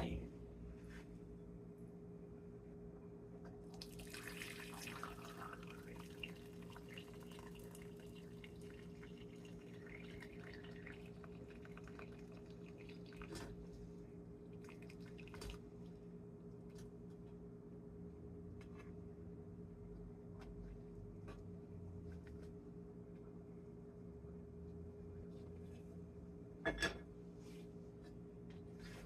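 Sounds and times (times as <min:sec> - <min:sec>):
liquid dripping and trickling: 0:03.8 - 0:13.6, 0:14.5 - 0:15.6.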